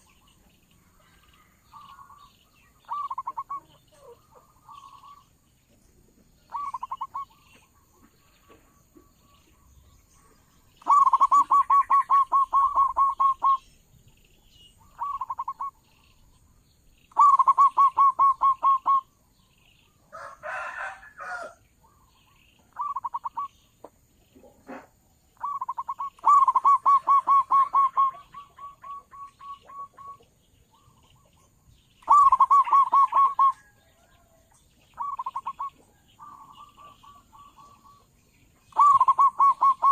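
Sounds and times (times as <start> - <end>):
dove cooing in pulsed notes: 1.0 - 5.3, 6.5 - 7.7, 10.8 - 13.6, 14.8 - 16.1, 17.1 - 19.1, 22.7 - 23.6, 24.7 - 31.4, 32.0 - 34.2, 34.9 - 39.9.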